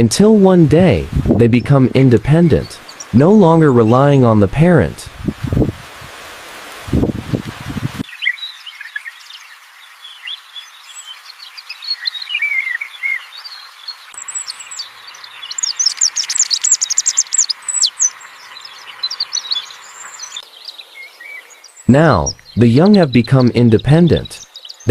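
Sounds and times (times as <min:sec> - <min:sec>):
small birds chirping: 0:01.6 - 0:04.2, 0:08.0 - 0:24.9.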